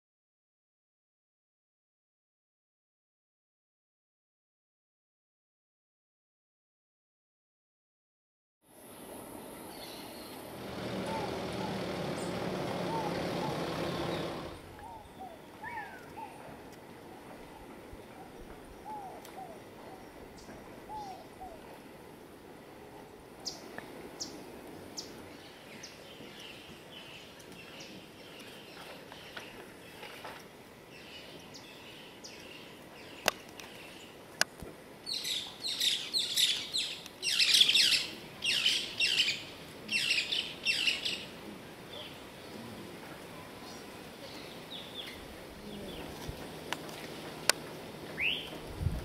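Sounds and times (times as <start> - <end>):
birds chirping: 9.0 - 16.5, 35.0 - 48.7.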